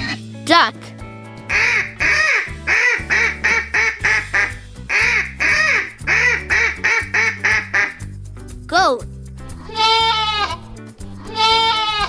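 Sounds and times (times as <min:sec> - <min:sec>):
backing music: 0:01.0 - 0:08.6
duck quacking: 0:01.5 - 0:08.0.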